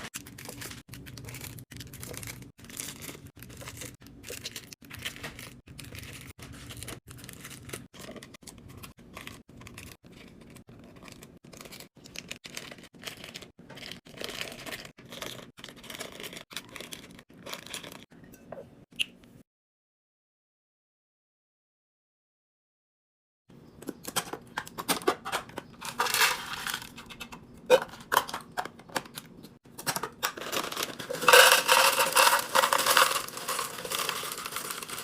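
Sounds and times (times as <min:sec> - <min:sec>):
plastic packaging tearing and crinkling: 0:00.0 - 0:18.1, 0:29.8 - 0:35.0.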